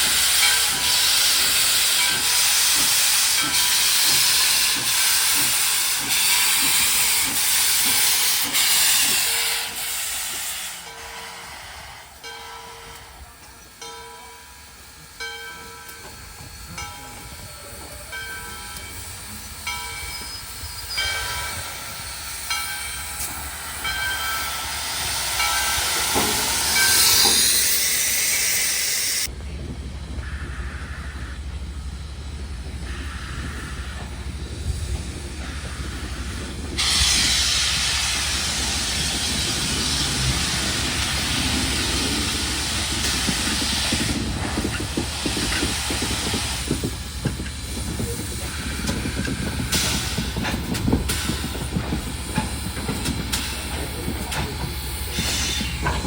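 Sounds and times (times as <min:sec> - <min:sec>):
train bell ringing: 0:00.0 - 0:08.1, 0:10.8 - 0:28.6
hiss of escaping steam: 0:00.0 - 0:13.2, 0:14.7 - 0:29.3, 0:32.8 - 0:56.0
low rumble of train running: 0:00.0 - 0:56.0.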